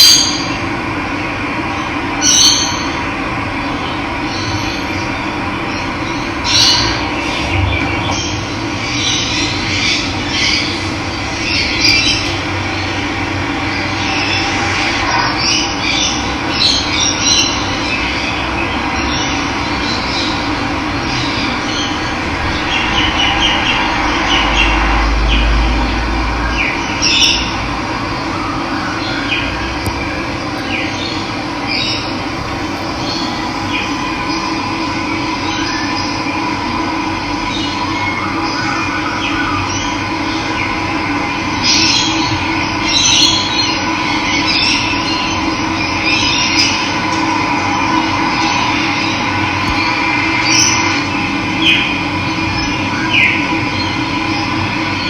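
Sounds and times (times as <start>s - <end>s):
birds chirping: 29.0s - 36.2s.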